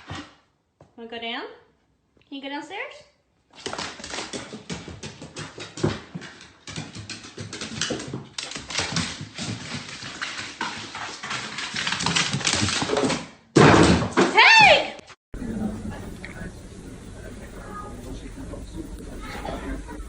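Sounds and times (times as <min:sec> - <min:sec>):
dog claws clattering on hard floor: 0:03.6 - 0:14.1.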